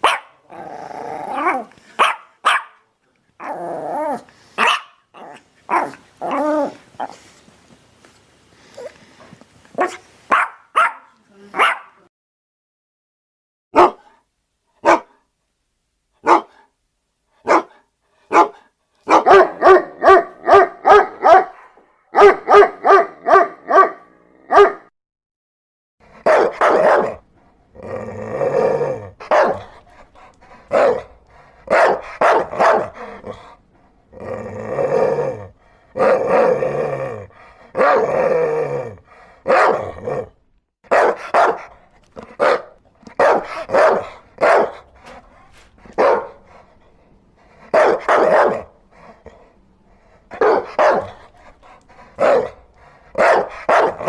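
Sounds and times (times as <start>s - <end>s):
dogs barking: 0.0s - 0.5s, 1.4s - 2.8s, 4.6s - 5.0s, 9.8s - 12.0s, 13.8s - 14.1s, 14.8s - 15.2s, 16.2s - 16.6s, 17.4s - 24.9s, 26.2s - 27.2s, 29.2s - 29.7s, 30.7s - 33.3s, 39.4s - 39.9s, 40.9s - 45.2s, 45.9s - 46.5s, 47.7s - 48.7s, 50.3s - 51.3s, 52.2s - 54.0s.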